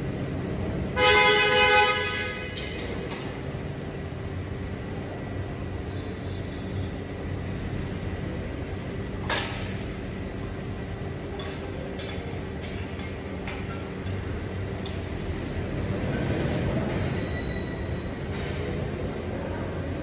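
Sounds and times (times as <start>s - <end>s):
steady mechanical hum: 0.0s - 20.0s
sharp clicks and knocks: 9.2s - 9.8s, 11.3s - 14.2s.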